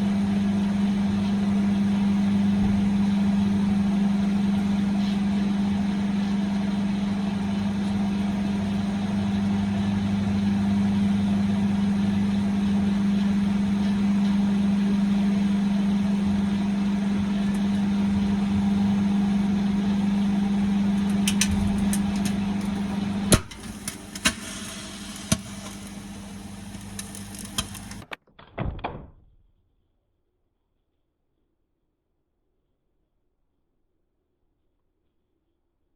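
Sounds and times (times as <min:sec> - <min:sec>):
microwave oven humming: 0:00.0 - 0:28.0
egg crackling: 0:16.5 - 0:28.0
clicks: 0:20.9 - 0:24.5, 0:25.1 - 0:28.2
egg popping: 0:20.9 - 0:28.0.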